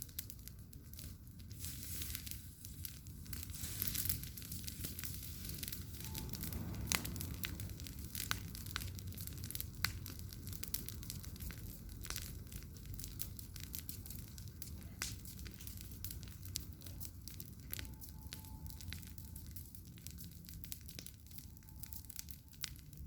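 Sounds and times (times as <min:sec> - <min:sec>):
bonfire crackling and popping: 0:00.0 - 0:23.0
low rumble: 0:02.8 - 0:17.0.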